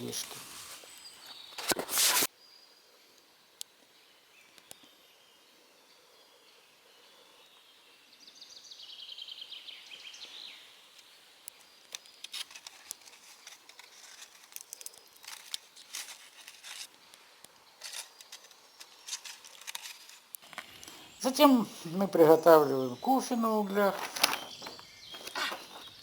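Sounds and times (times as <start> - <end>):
campfire crackling and popping: 19.3 - 21.2
bird trilling: 20.9 - 26.0.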